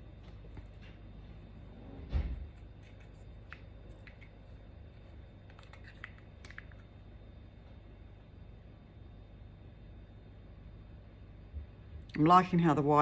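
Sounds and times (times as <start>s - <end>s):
plastic cups clicking and tapping: 2.9s - 4.4s, 5.5s - 6.9s.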